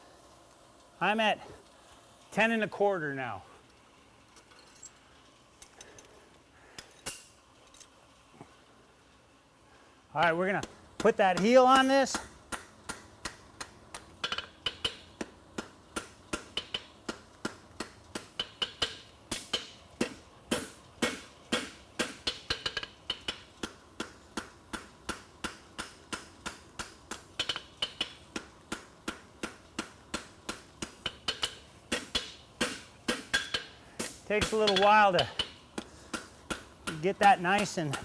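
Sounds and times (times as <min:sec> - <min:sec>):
hammer striking metal on anvil: 0:18.2 - 0:23.4, 0:24.8 - 0:38.0.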